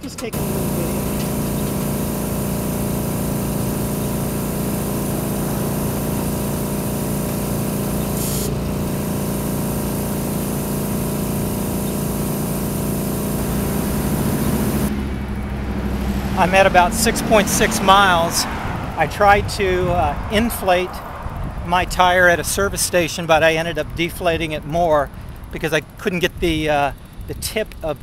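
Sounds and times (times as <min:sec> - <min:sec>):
air compressor humming: 0:00.1 - 0:28.0
air hissing from hose: 0:00.4 - 0:14.9, 0:15.9 - 0:18.5.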